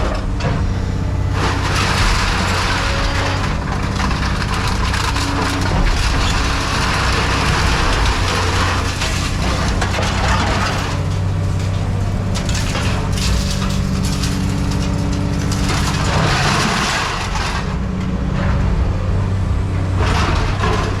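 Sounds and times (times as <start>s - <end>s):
machine power unit droning: 0.0s - 21.0s
scrap metal crunching: 0.0s - 21.0s.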